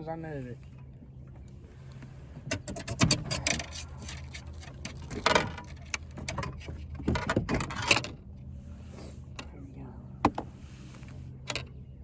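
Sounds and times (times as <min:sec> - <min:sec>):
steady low hum: 0:00.0 - 0:12.0
clicks knocks and rattles in boat: 0:02.3 - 0:08.2, 0:11.4 - 0:11.8.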